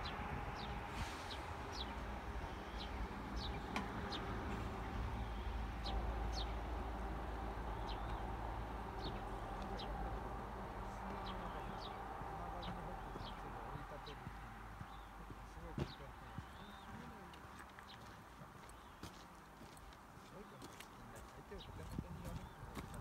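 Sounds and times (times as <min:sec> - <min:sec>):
high-pitched bird calls: 0:07.7 - 0:08.3.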